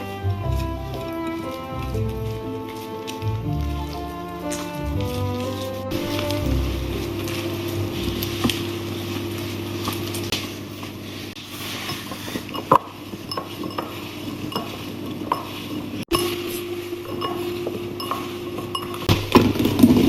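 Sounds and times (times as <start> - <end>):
low hum: 3.3 - 10.8
utensil clinking against bowl: 11.9 - 19.2.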